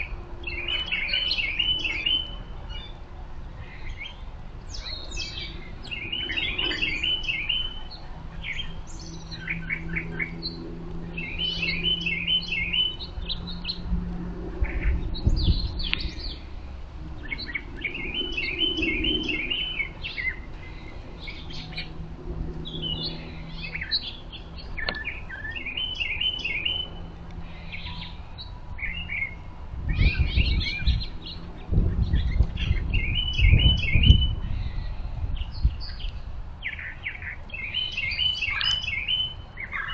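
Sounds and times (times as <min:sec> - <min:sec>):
songbirds chirping: 0:00.0 - 0:39.9
low rumble: 0:12.9 - 0:25.2.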